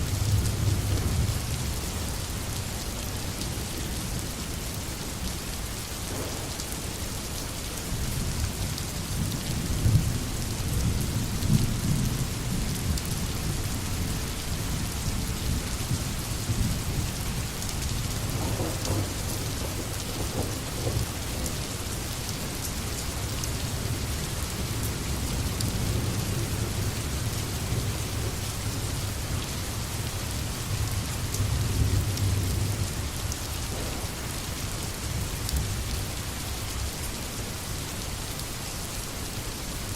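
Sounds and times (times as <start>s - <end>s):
steady rain: 0.0s - 39.9s
thunder rumbling: 6.1s - 7.0s, 18.2s - 21.6s, 33.5s - 35.8s.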